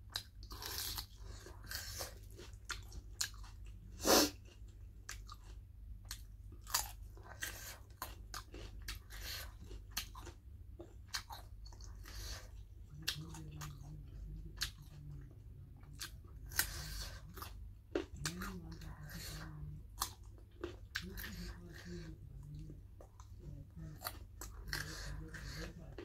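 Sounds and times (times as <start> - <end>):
person crunching carrot: 0.1 - 12.3, 16.0 - 18.5, 20.0 - 21.4.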